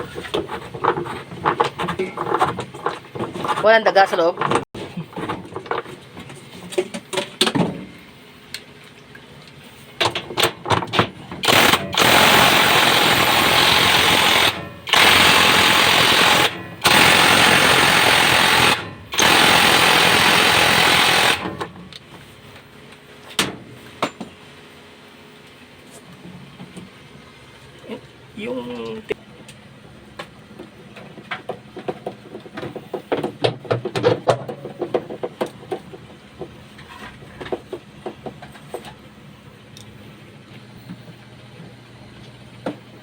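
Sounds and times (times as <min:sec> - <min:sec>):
knocks and clatter: 0:04.3 - 0:07.9.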